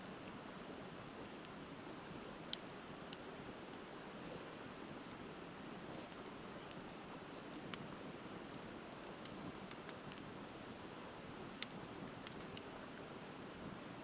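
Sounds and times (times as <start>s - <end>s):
bonfire crackling and popping: 0.0s - 1.7s, 2.3s - 3.9s, 5.0s - 10.4s, 11.4s - 13.8s.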